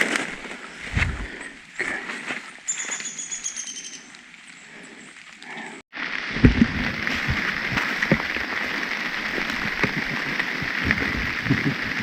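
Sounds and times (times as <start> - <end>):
steady rain falling: 0.0 - 12.0
heavy raindrops tapping: 6.0 - 12.0.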